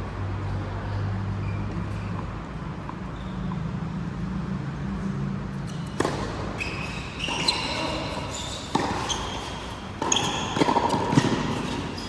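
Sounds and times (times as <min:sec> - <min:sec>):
shoes squeaking on court floor: 0:00.9 - 0:03.9, 0:05.5 - 0:12.0
racket hitting ball: 0:05.9 - 0:12.0.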